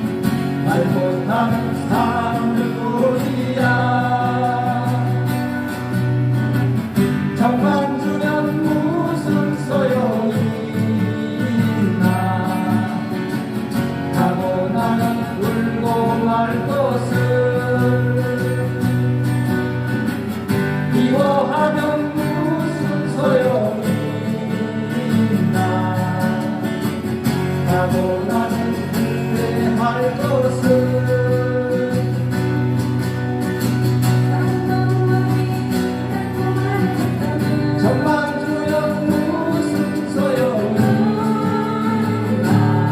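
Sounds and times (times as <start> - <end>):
acoustic guitars strumming: 0.0 - 42.9
person singing: 0.6 - 5.9, 7.4 - 13.3, 14.2 - 19.4, 27.5 - 32.6, 34.1 - 42.9.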